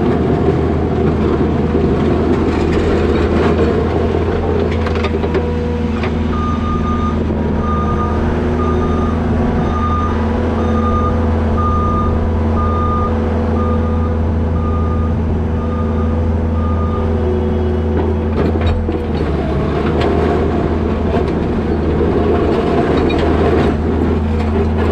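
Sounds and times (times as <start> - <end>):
engine running: 0.0 - 24.9
backup alarm beeping: 6.3 - 17.1.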